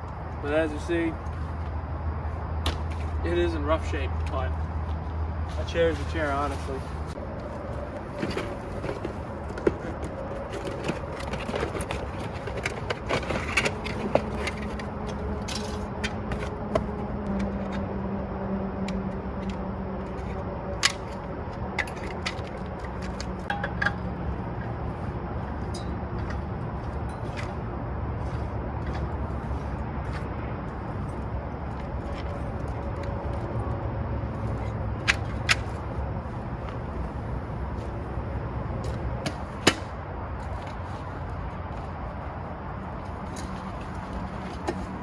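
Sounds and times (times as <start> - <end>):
gear being handled: 3.8 - 17.9.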